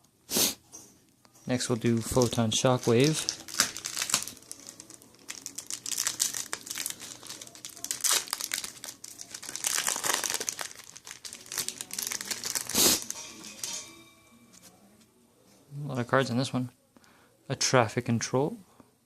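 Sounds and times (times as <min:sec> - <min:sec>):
foil wrapper tearing and crinkling: 0:01.6 - 0:13.7.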